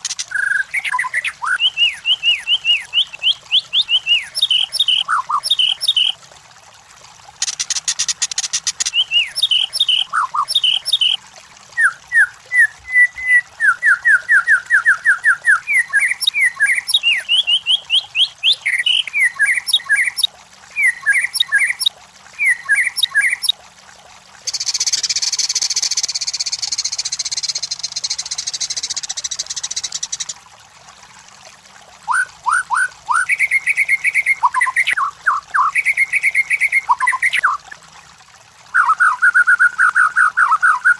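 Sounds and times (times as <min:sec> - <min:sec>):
bird singing whistled notes: 0:00.3 - 0:06.2, 0:08.9 - 0:11.2, 0:11.8 - 0:23.5, 0:24.5 - 0:30.3, 0:32.1 - 0:37.4.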